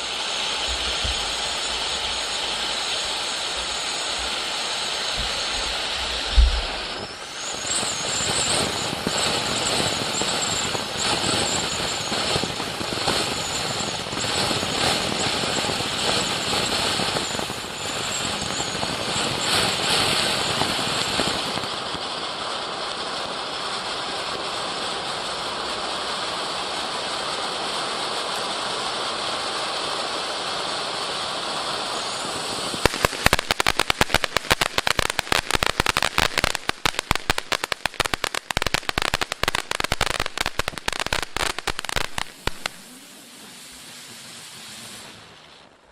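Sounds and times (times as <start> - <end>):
firework bang: 0.0 - 21.8, 32.0 - 45.9
firework fountain hissing: 0.0 - 45.9
high whistling tones: 0.6 - 20.8, 38.4 - 45.9
rapid crackling: 32.8 - 45.4.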